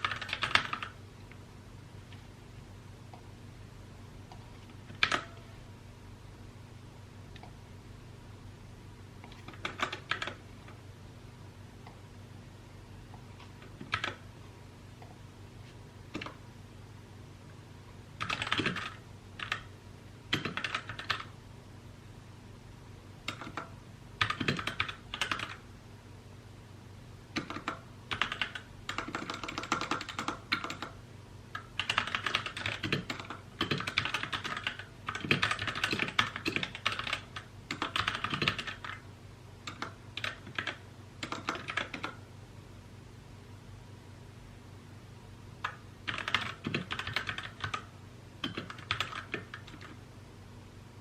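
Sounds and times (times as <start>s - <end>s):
mechanical keyboard typing: 0.0s - 1.0s, 4.6s - 5.4s, 9.2s - 10.8s, 13.4s - 14.2s, 16.1s - 16.4s, 18.2s - 19.7s, 20.3s - 21.3s, 23.3s - 25.6s, 27.4s - 31.0s, 31.6s - 39.0s, 39.6s - 42.2s, 45.6s - 50.0s.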